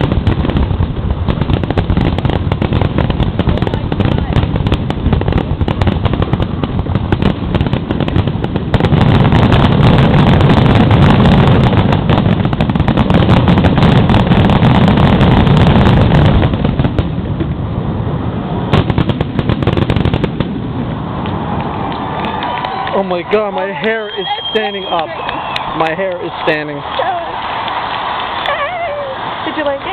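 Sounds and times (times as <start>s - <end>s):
sharp firework bang: 0.0s - 17.6s
fireworks launching and bursting: 0.0s - 29.9s.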